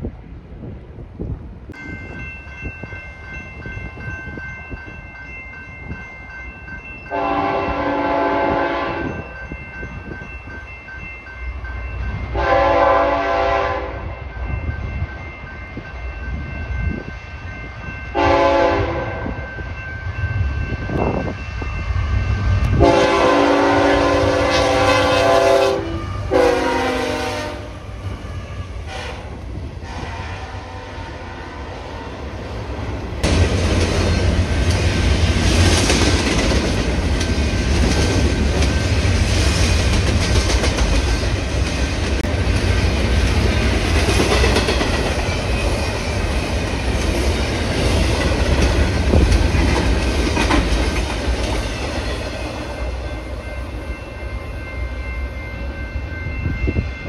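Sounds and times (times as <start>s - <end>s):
train wheels rumbling: 0.0s - 57.0s
locomotive air horn: 7.1s - 9.2s, 12.4s - 14.0s, 18.1s - 19.4s, 22.7s - 32.1s
clickety-clack over rail joints: 33.2s - 52.8s.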